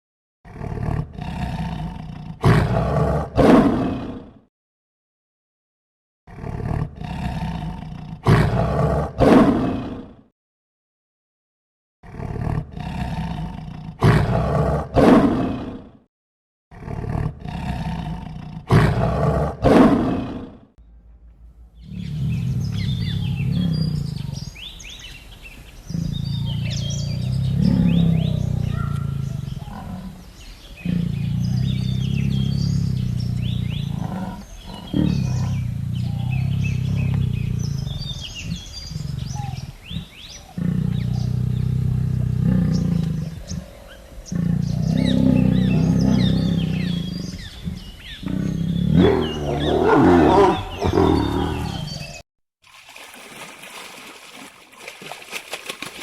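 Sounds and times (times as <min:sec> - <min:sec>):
deep animal roaring: 0:00.5 - 0:04.4, 0:06.3 - 0:10.3, 0:12.0 - 0:16.1, 0:16.7 - 0:25.0, 0:25.8 - 0:52.2
small birds chirping: 0:20.8 - 0:52.2.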